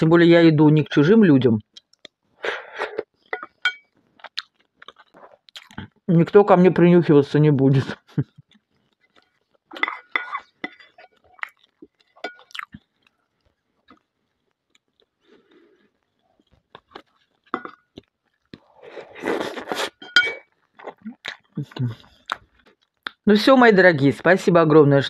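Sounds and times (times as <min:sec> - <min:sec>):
person chewing: 0:01.7 - 0:06.1, 0:08.2 - 0:23.2
mouth clicks: 0:19.3 - 0:23.2.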